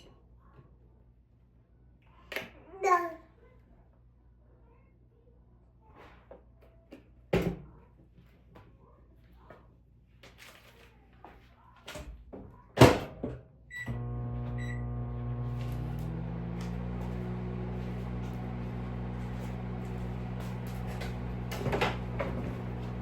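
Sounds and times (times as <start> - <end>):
microwave humming: 13.8 - 23.0.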